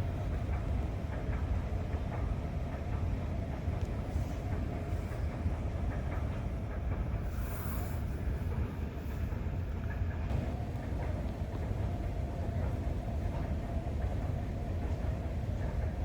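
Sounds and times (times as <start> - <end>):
jet engines rumbling: 7.0 - 16.0.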